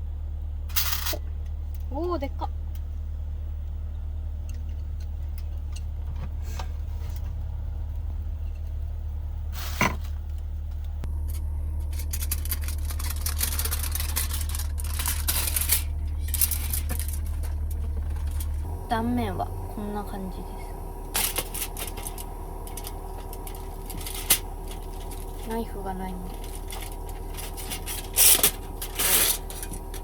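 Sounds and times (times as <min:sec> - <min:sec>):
steady low hum: 0:00.0 - 0:30.0
crackling and scraping in a pan: 0:11.2 - 0:18.6, 0:26.3 - 0:30.0.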